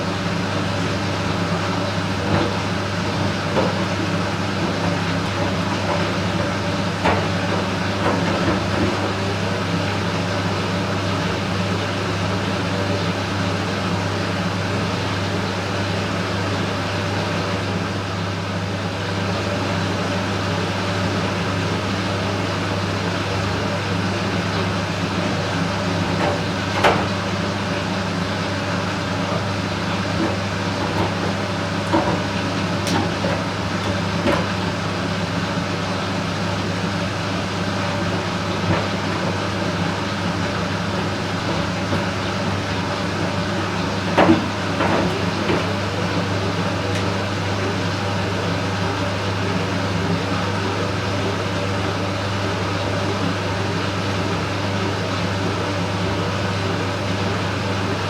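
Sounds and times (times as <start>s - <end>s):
washing machine humming: 0.0s - 58.0s
knocks from washing machine drum: 26.0s - 27.4s.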